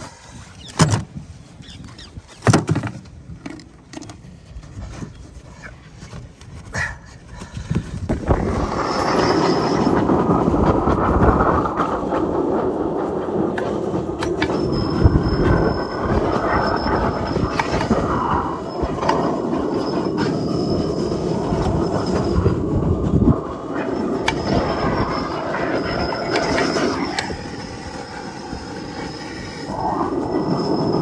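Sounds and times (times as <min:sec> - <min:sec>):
faint high whine: 0:08.2 - 0:31.0.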